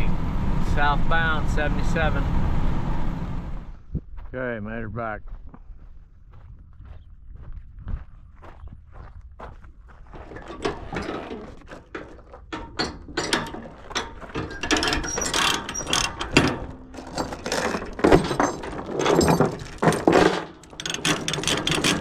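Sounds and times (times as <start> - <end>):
ratchet tie-down clicking: 12.6 - 18.2.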